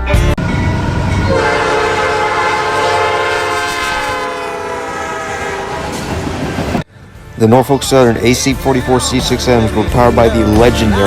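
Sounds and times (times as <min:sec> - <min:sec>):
low train rumble: 0:00.0 - 0:11.0
locomotive air horn chord: 0:01.3 - 0:06.0.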